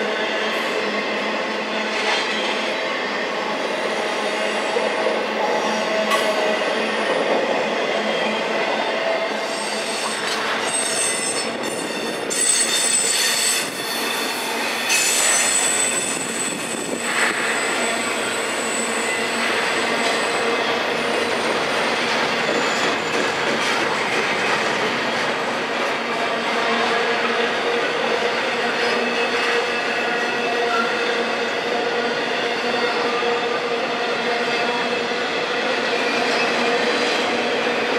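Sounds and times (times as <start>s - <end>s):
freight train rumbling past: 0.0s - 37.9s
steel wheels squealing: 9.3s - 21.2s, 22.3s - 23.5s, 28.5s - 35.1s.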